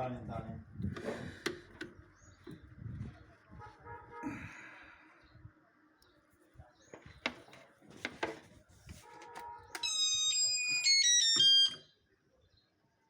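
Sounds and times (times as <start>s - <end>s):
electronic beeper melody: 9.9s - 11.9s.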